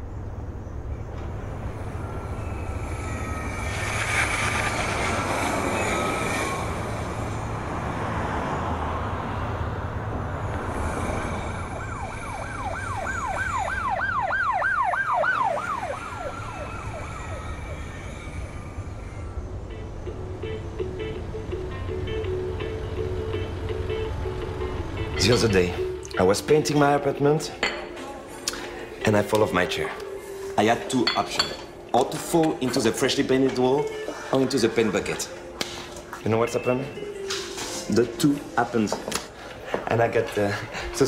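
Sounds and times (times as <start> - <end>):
street traffic noise: 0.0 - 41.0
emergency vehicle siren: 1.2 - 26.0.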